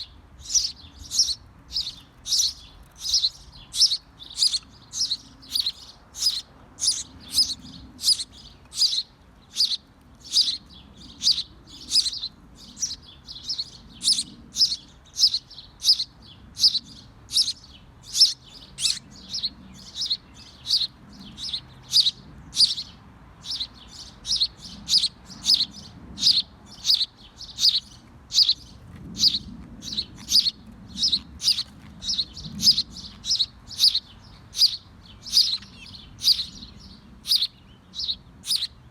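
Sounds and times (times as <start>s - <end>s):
small bird chirping: 0.0s - 38.9s.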